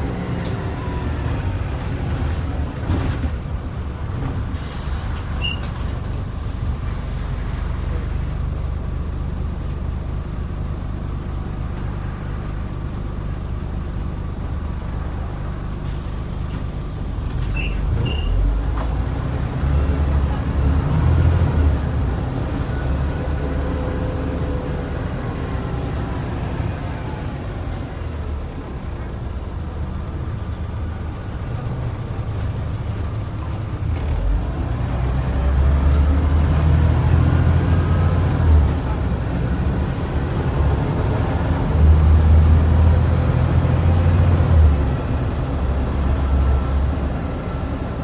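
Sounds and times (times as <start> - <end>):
bus diesel engine running: 0.0 - 48.0
air brakes hissing: 4.4 - 8.4, 15.8 - 18.4.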